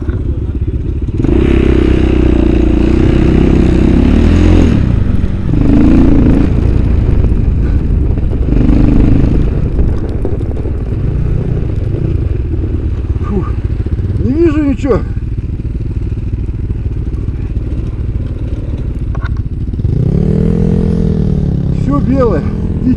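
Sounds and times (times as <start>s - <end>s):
motorcycle engine under throttle: 0.0s - 22.9s.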